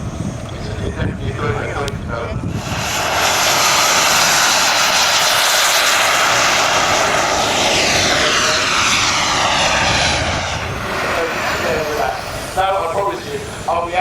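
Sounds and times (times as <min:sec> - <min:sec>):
model aircraft engine flying past: 0:00.0 - 0:14.0
steady loud rushing noise: 0:00.0 - 0:14.0.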